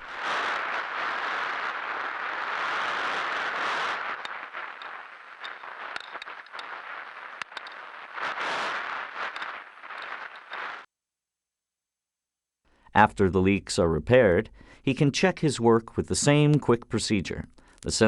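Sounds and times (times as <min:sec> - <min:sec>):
hissing rush of gas leak: 0:00.0 - 0:10.9
sharp clicks: 0:03.2 - 0:10.9.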